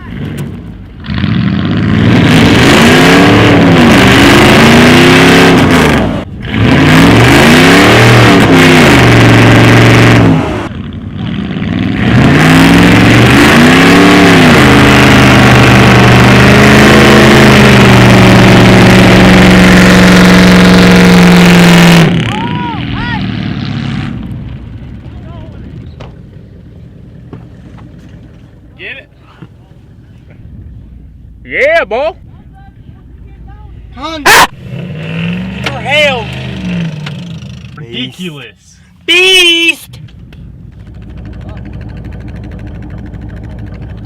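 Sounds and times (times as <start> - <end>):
truck engine revving loudly: 0.0 - 25.9, 33.8 - 38.5, 40.8 - 44.0.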